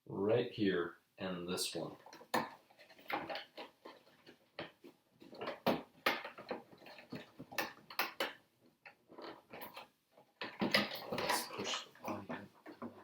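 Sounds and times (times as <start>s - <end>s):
plastic parts clicking and rattling: 1.9s - 13.0s.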